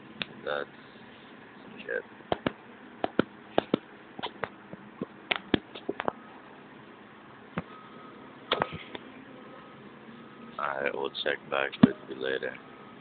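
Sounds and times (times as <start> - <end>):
sharp irregular clicks and taps: 2.3 - 6.2
truck reversing alarm beeping: 7.7 - 8.3.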